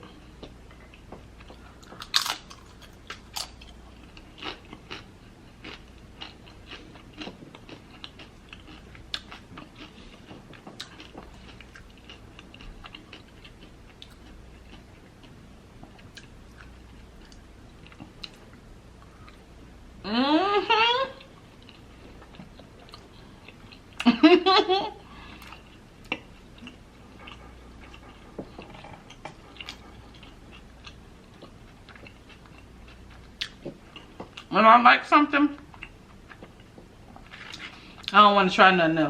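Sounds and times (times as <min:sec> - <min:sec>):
person chewing food: 0:00.0 - 0:19.8, 0:21.2 - 0:24.2, 0:25.0 - 0:34.5, 0:35.6 - 0:38.1
crunchy bites: 0:01.8 - 0:03.7.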